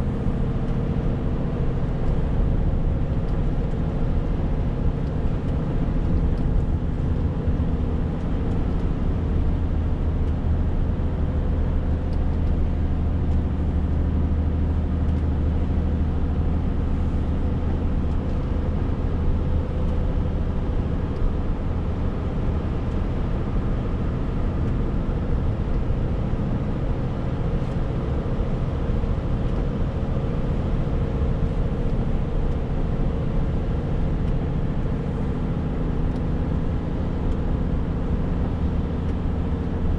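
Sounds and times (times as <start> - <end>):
lorry diesel engine running: 0.0 - 39.9
road noise: 0.0 - 39.9.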